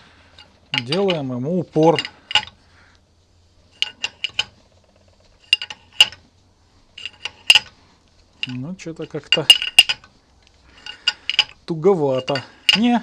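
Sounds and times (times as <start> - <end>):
steel tools clinking: 0.3 - 2.6, 3.7 - 4.6, 5.4 - 6.2, 7.0 - 7.8, 8.4 - 13.0.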